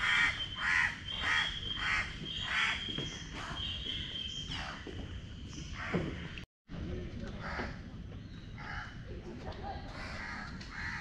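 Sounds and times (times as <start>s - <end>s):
bird calling: 0.0s - 6.4s.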